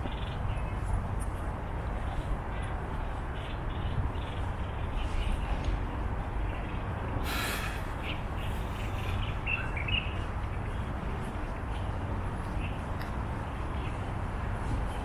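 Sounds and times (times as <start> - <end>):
birds chirping: 0.0 - 14.2.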